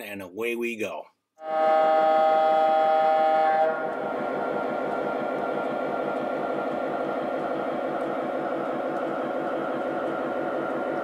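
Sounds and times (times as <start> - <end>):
model train horn chord: 1.4 - 4.8
train rumbling along track: 2.8 - 11.0.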